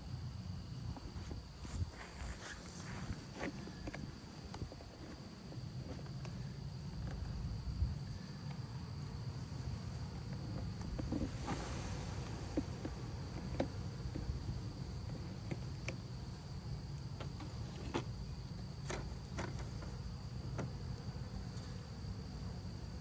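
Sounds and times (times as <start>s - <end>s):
bee swarm buzzing: 11.2s - 16.8s.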